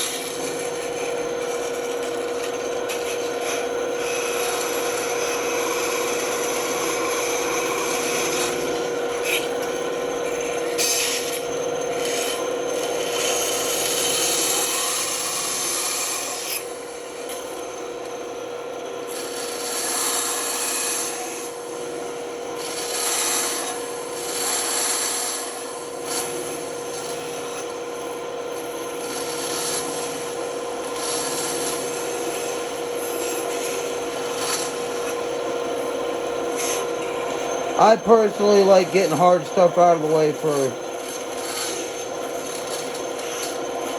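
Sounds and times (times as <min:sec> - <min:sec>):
saw blade cutting wood: 0:01.4 - 0:16.8, 0:19.1 - 0:21.6, 0:22.6 - 0:26.3, 0:30.9 - 0:35.2, 0:37.9 - 0:43.6
band saw humming: 0:36.5 - 0:42.0.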